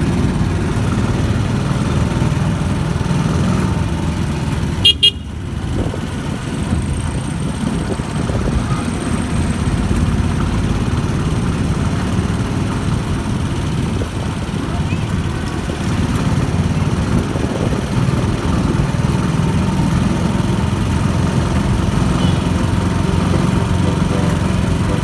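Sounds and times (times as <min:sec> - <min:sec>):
road vehicle running: 0:00.0 - 0:25.0
short high horn toot: 0:23.8 - 0:25.0.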